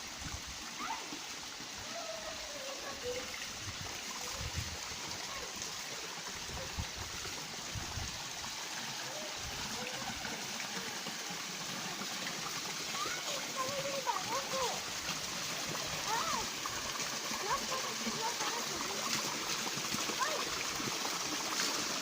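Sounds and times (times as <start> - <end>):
waterfall rushing: 0.7 - 22.0.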